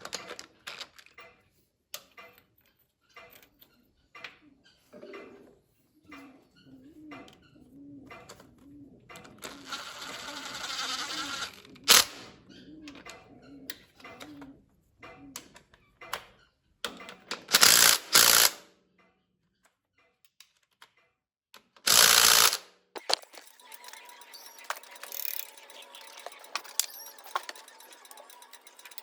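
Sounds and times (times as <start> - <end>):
metallic clicks and ratcheting: 9.2 - 12.3, 16.9 - 18.6, 21.8 - 29.0
dense rapid ticking: 23.4 - 29.0.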